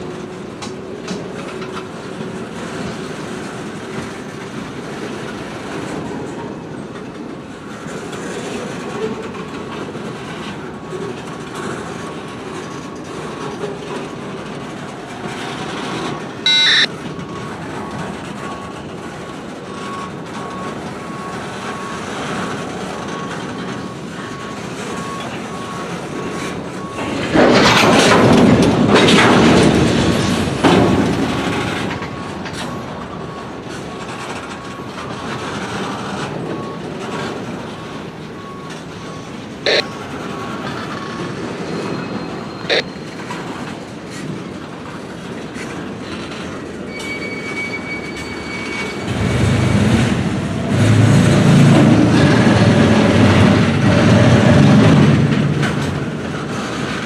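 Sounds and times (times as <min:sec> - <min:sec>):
freight train rumbling on rails: 0:00.0 - 0:57.0
high beep: 0:16.5 - 0:16.9, 0:39.7 - 0:39.9, 0:42.6 - 0:42.9.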